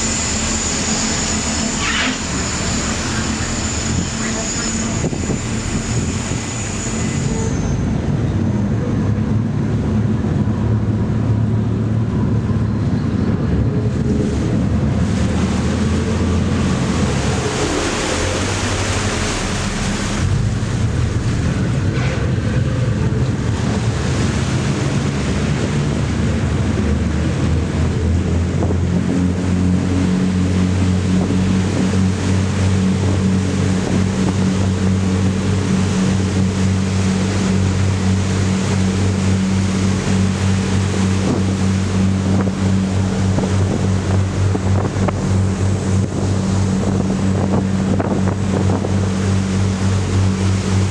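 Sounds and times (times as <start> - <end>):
ferry diesel engines droning: 0.0 - 50.9
rushing wind: 0.0 - 50.9
water noise: 0.0 - 50.9.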